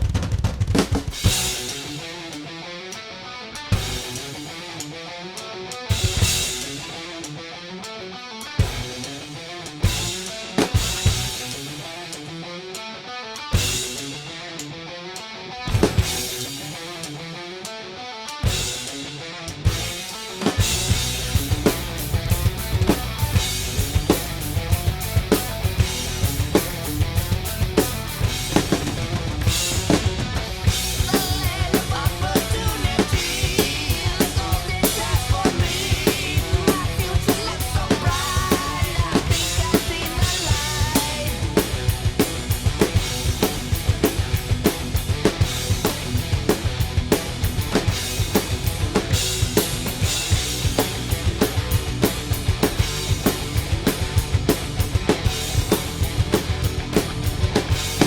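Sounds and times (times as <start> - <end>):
drum kit playing: 0.0 - 3.0, 3.6 - 58.0
heavy metal recording: 0.0 - 58.0.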